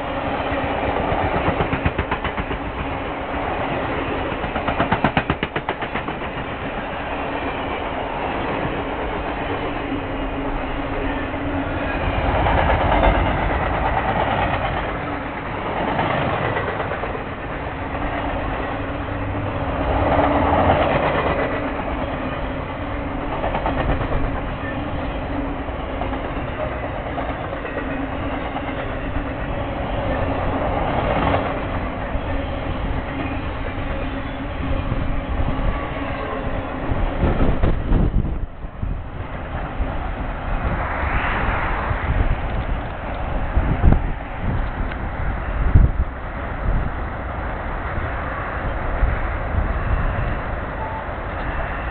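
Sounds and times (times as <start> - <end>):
train wheels clacking on rails: 0.0 - 38.5.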